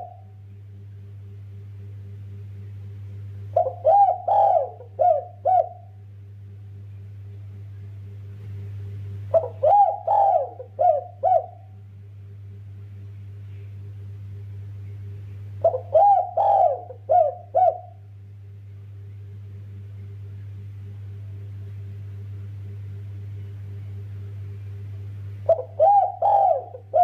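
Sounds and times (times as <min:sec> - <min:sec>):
dove cooing: 0:00.0 - 0:00.3, 0:03.5 - 0:06.0, 0:09.3 - 0:11.7, 0:15.6 - 0:18.0, 0:25.4 - 0:27.0
steady low hum: 0:00.0 - 0:27.0.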